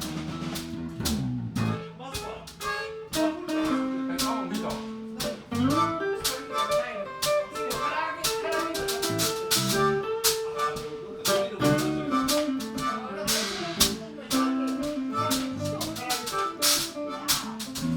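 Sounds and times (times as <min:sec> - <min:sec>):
harmonica bending notes: 0:00.0 - 0:17.9
live blues band playing: 0:00.0 - 0:17.9.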